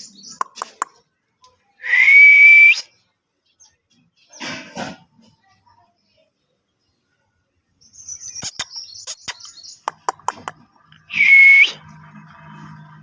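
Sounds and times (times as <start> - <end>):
sharp clicks: 0.4 - 1.6, 8.4 - 11.0
parrot chirping: 8.1 - 11.2.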